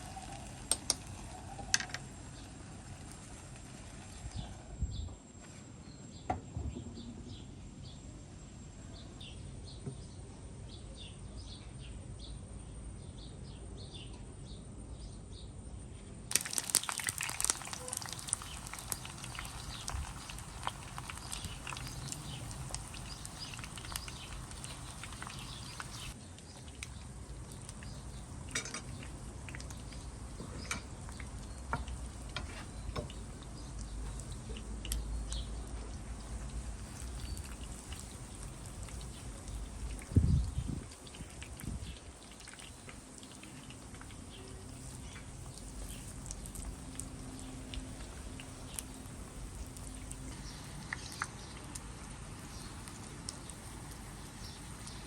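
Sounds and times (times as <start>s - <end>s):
crackling hiss with sharp pops: 0.0s - 4.6s, 16.3s - 55.0s.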